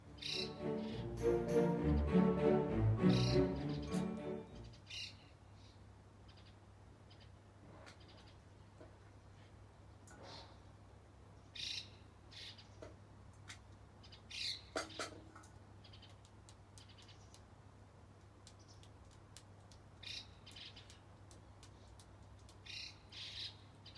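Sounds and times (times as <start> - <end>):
small birds chirping: 15.7 - 17.6, 18.3 - 23.9.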